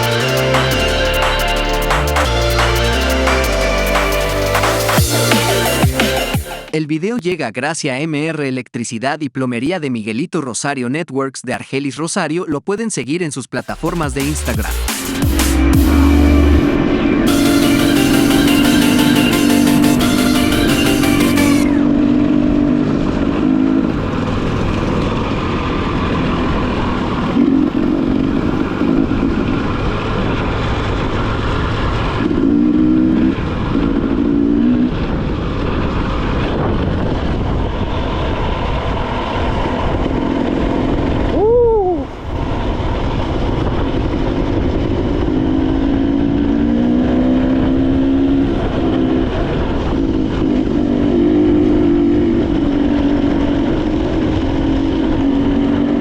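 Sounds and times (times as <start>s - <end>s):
motorcycle engine revving: 13.7s - 41.4s, 42.1s - 56.0s
wind noise: 33.0s - 56.0s.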